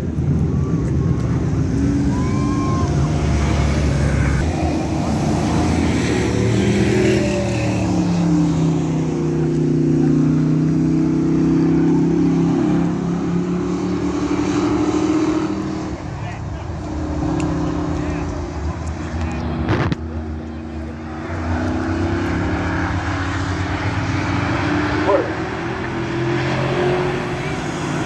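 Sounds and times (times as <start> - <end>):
racing truck engines passing: 0.0 - 28.0.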